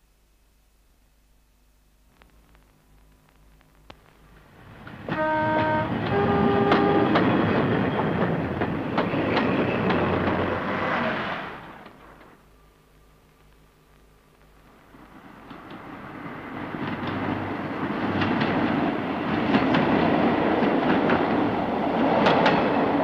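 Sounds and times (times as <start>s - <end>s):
train running noise: 4.3s - 12.4s, 14.7s - 23.0s
two-note train horn: 5.1s - 7.5s.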